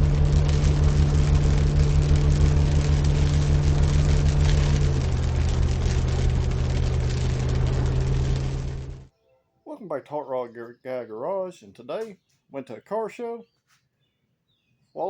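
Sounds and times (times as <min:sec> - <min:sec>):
car engine humming: 0:00.0 - 0:09.1.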